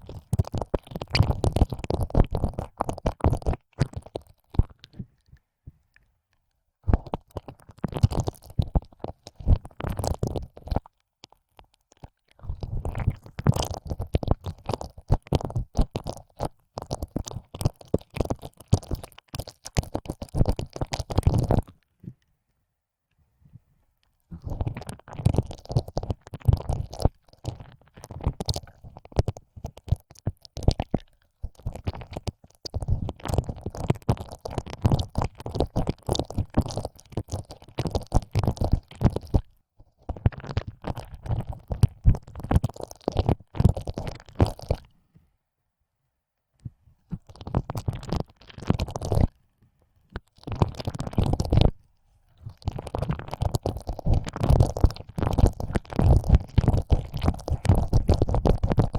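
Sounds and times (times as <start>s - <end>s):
wet tongue licking in ear: 52.4s - 58.9s.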